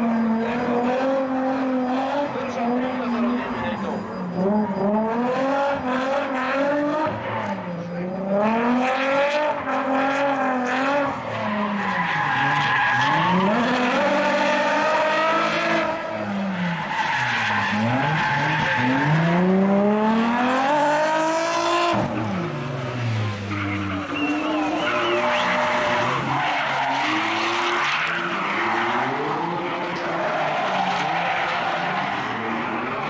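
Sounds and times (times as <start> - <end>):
car engines revving hard: 0.0 - 33.0
tyres screeching: 23.3 - 29.2.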